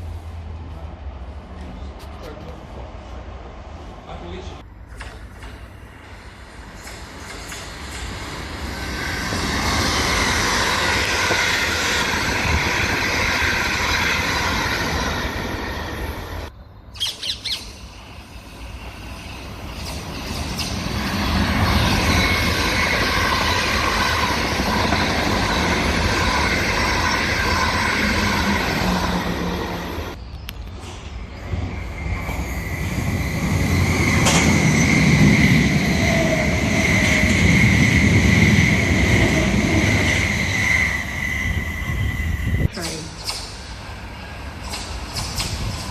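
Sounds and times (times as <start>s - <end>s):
train wheels rumbling on track: 0.0s - 16.5s, 17.6s - 45.9s
high wheel squeal: 31.4s - 42.7s.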